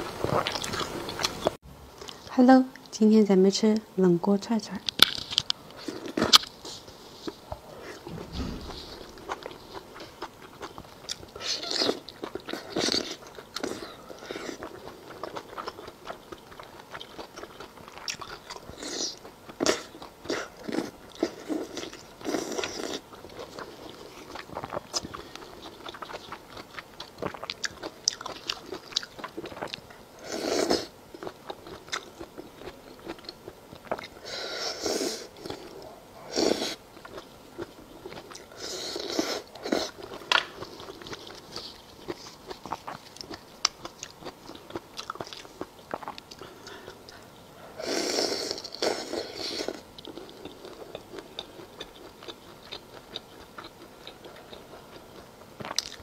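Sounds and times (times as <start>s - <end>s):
biting and chewing food: 4.9s - 30.0s, 36.9s - 47.3s.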